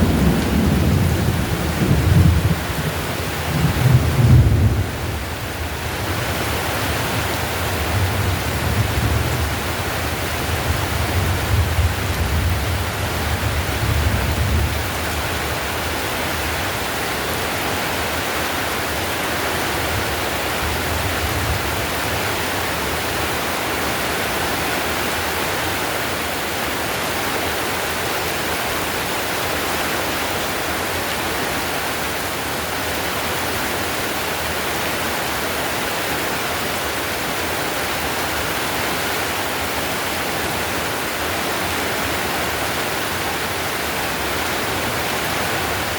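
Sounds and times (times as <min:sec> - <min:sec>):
low thunder rumble: 0:00.0 - 0:05.5
heavy rain on roof tiles: 0:00.0 - 0:45.9.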